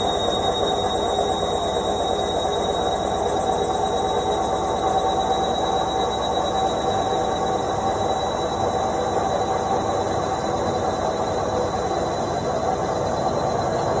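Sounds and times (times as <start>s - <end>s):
washing machine spinning: 0.0s - 14.0s.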